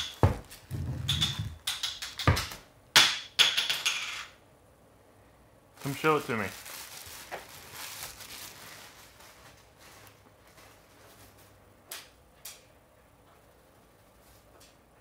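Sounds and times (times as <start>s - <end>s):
light rustling and handling: 5.8s - 11.6s.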